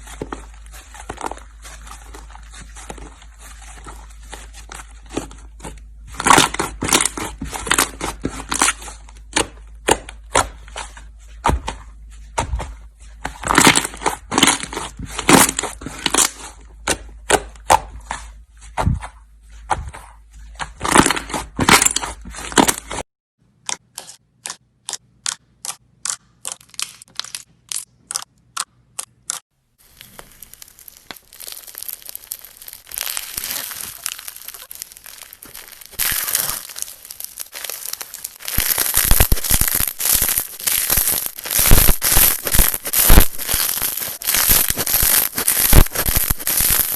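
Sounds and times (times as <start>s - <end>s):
soft rustling squish: 0.0s - 5.4s, 29.8s - 46.5s
slime crackling and popping: 6.1s - 10.5s, 29.8s - 46.9s
slime squeezed by hand: 29.9s - 46.9s.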